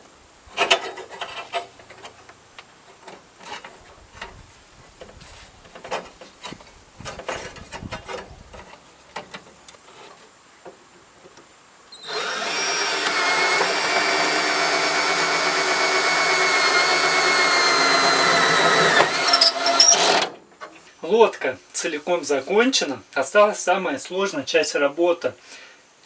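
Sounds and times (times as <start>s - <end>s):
power tool whining: 12.0s - 20.3s.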